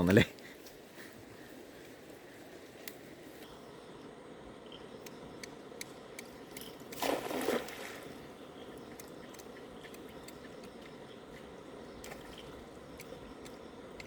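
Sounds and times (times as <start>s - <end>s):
faint clicks: 2.8s - 3.5s
flowing river water: 6.6s - 9.2s
net splashing into water: 7.0s - 8.1s.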